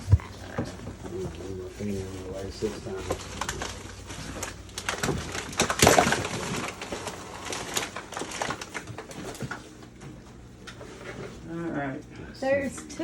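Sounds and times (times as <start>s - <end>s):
trash crunching underfoot: 2.5s - 9.6s.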